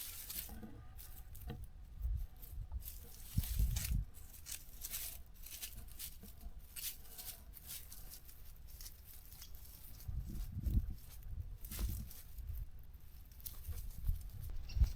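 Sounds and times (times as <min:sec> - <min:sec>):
footsteps crunching on dry trail: 0:00.0 - 0:01.5, 0:02.2 - 0:14.9
low microphone rumbles: 0:09.9 - 0:12.8.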